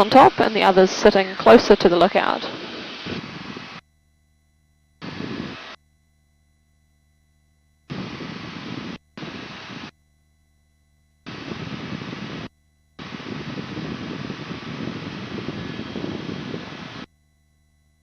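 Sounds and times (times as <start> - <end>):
helicopter engine and rotor noise: 0.0 - 3.8.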